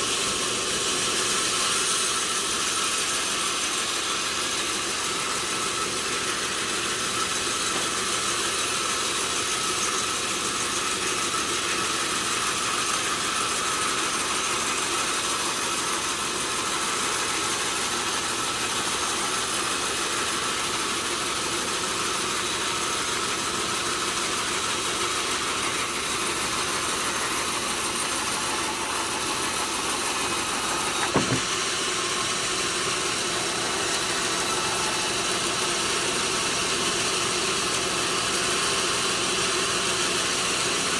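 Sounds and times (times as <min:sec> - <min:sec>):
sawmill machinery running: 0:00.0 - 0:40.9
sharp knock: 0:30.9 - 0:31.5.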